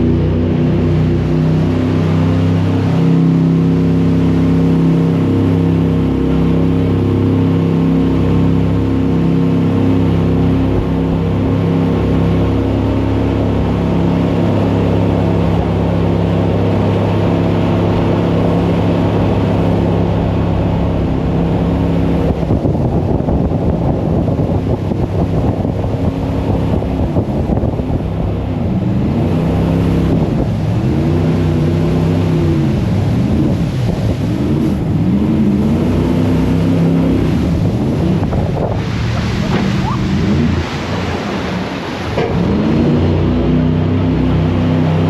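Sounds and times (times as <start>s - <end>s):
boat engine running hard: 0.0s - 45.0s
water rushing: 0.0s - 45.0s
wind buffeting microphone: 9.9s - 45.0s.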